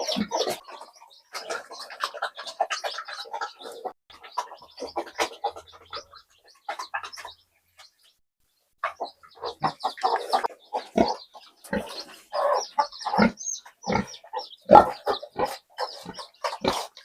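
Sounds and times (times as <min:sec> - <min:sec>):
chickens clucking: 0:00.0 - 0:17.0
pigs grunting and squealing: 0:09.3 - 0:17.0.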